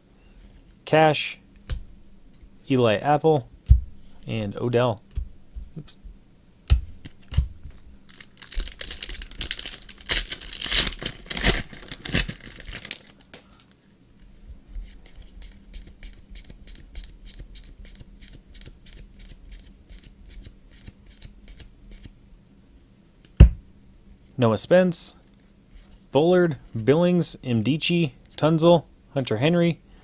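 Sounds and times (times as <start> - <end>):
wrapper tearing and crinkling: 8.1 - 13.3.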